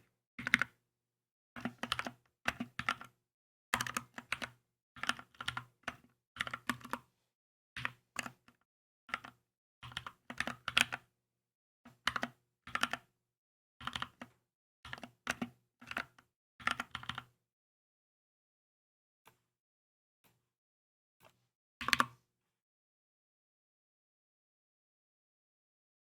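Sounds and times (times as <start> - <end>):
mechanical keyboard typing: 3.8 - 7.0, 14.9 - 17.3.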